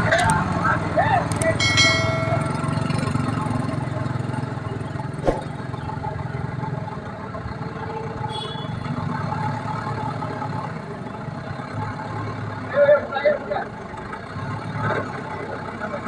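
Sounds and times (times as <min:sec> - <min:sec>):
sharp knock: 0:05.2 - 0:05.5.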